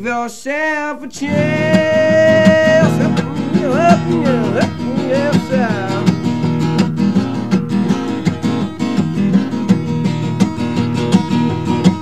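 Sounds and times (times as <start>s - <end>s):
person singing: 0.0s - 6.2s
strummed acoustic guitar: 1.1s - 12.0s.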